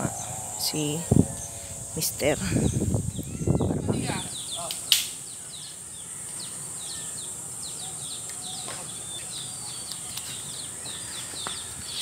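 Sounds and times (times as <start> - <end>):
high-pitched buzz: 0.0 - 4.5
birds chirping: 0.0 - 12.0.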